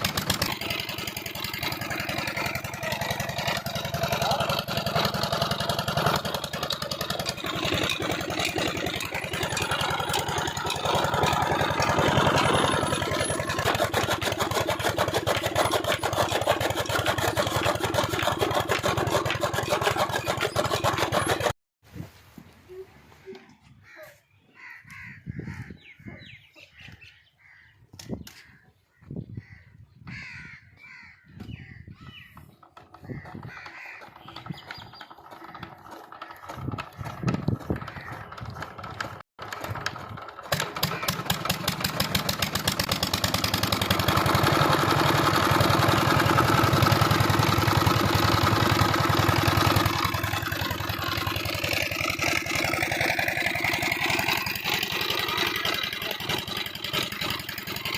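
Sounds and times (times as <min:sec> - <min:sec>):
diesel engine running: 0:00.0 - 0:21.6, 0:33.0 - 0:57.9
crows cawing: 0:23.8 - 0:26.0, 0:28.4 - 0:32.3, 0:32.9 - 0:34.4, 0:37.8 - 0:38.3.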